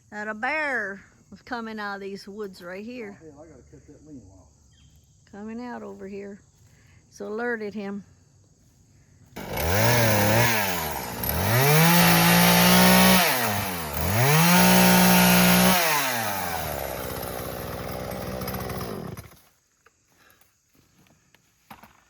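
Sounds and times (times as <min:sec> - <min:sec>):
chainsaw revving and idling: 0:09.4 - 0:19.6.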